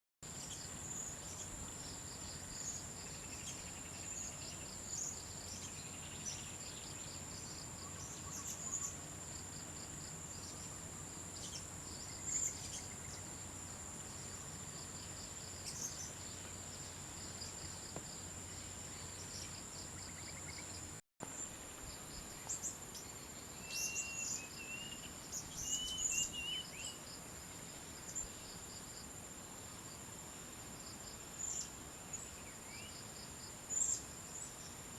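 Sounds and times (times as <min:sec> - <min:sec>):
insects droning: 0:00.2 - 0:34.9
bird chirps: 0:02.4 - 0:09.0, 0:22.4 - 0:27.0.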